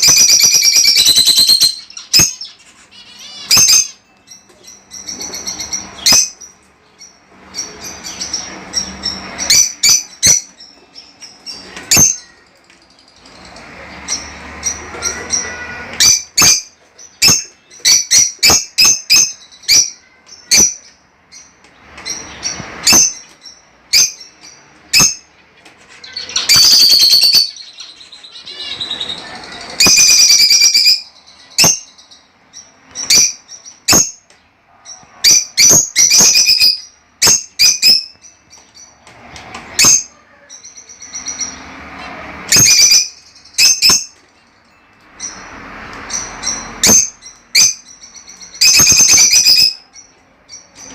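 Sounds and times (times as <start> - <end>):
budgerigars chirping: 0.0 - 12.4, 45.2 - 50.9.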